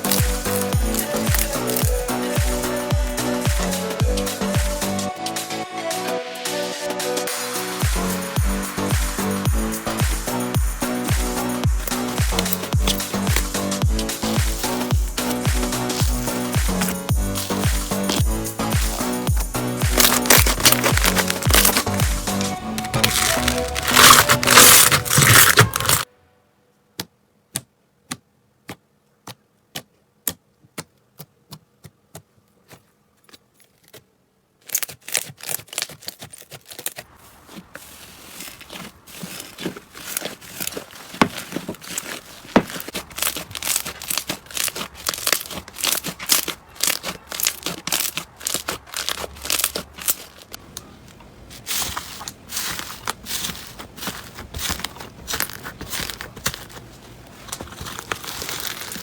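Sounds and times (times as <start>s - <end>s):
slime clicking and crackling: 0.0s - 4.9s, 8.8s - 26.0s, 27.0s - 50.6s, 51.6s - 59.0s.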